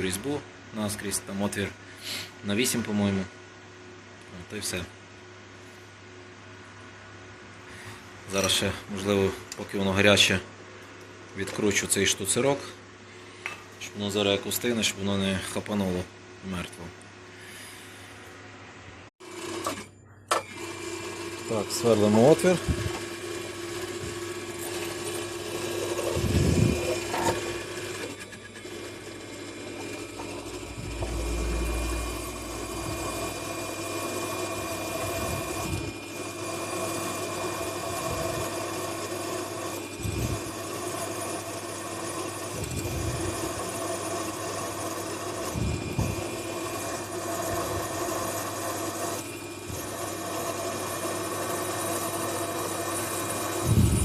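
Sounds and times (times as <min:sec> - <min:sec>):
electric drill drilling metal: 0:21.0 - 0:54.0.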